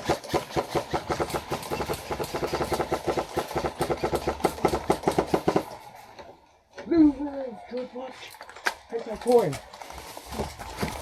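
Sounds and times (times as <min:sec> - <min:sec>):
airsoft gun rapid firing: 0:00.0 - 0:05.7.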